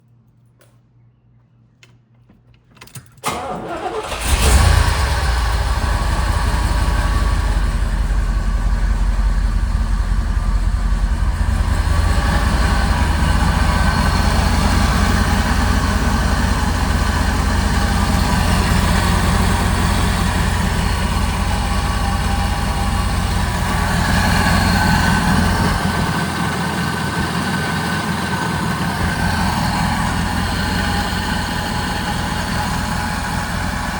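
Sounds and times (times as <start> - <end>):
starter motor cranking: 3.2 - 5.7
car engine idling: 3.2 - 33.9.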